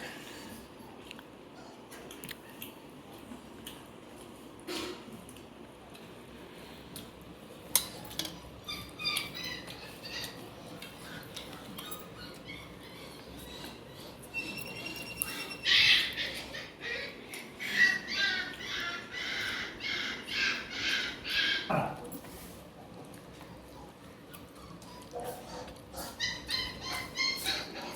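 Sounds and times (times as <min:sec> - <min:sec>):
animals chirping and squawking: 0:08.3 - 0:22.0, 0:23.4 - 0:27.9.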